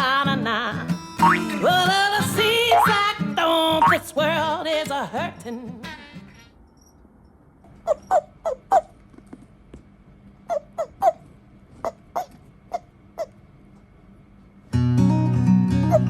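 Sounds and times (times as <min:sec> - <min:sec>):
short sharp animal calls: 0:11.8 - 0:13.4.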